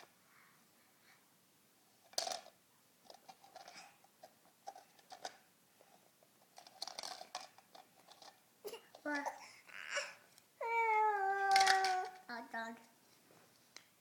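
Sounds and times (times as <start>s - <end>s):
plastic toy pieces clicking: 11.4s - 12.2s.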